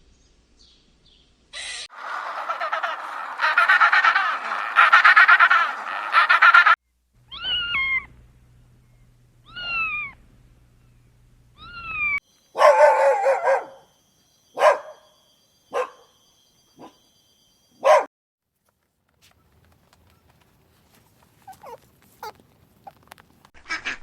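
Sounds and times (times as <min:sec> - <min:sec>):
rapid chattering animal call: 0:01.6 - 0:06.8
cat meowing: 0:07.3 - 0:08.1, 0:09.4 - 0:10.2
dog barking: 0:12.6 - 0:13.9, 0:14.6 - 0:15.1, 0:15.7 - 0:16.1, 0:16.8 - 0:17.0, 0:17.8 - 0:18.1, 0:21.5 - 0:21.8.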